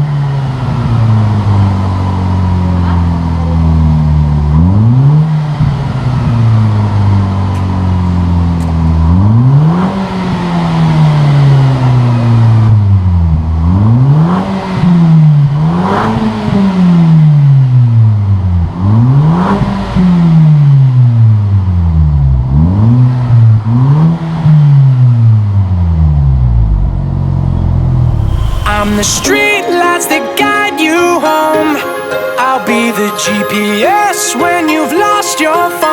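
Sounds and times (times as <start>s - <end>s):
car engine revving: 22.4s - 30.2s.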